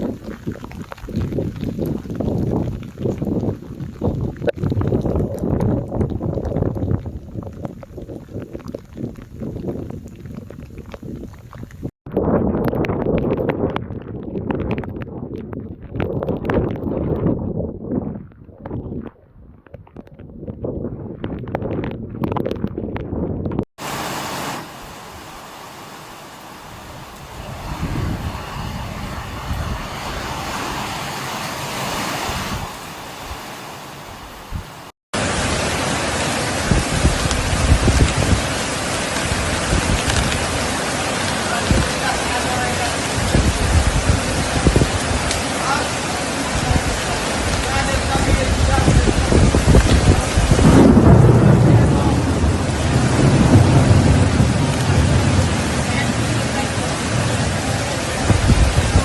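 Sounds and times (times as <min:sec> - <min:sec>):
heavy rain: 0:00.0 - 0:11.9, 0:23.8 - 0:59.0
thunder rumbling: 0:00.0 - 0:15.0, 0:23.8 - 0:38.6, 0:46.5 - 0:59.0
wind buffeting microphone: 0:00.0 - 0:34.9, 0:36.6 - 0:40.7, 0:41.5 - 0:45.8, 0:46.4 - 0:59.0.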